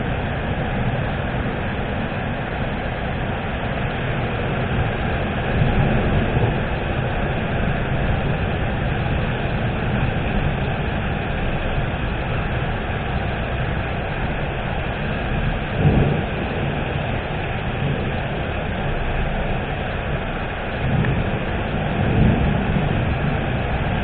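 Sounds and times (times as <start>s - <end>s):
rain hiss: 0.0s - 24.0s
thunder rumbles: 0.0s - 24.0s.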